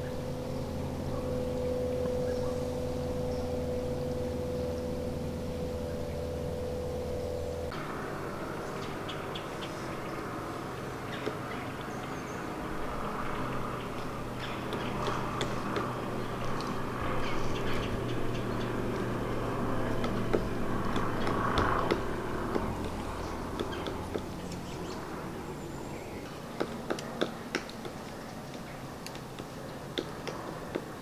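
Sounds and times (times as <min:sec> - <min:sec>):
low engine-like hum: 0:00.0 - 0:31.0
sharp taps and clicks: 0:26.6 - 0:30.9.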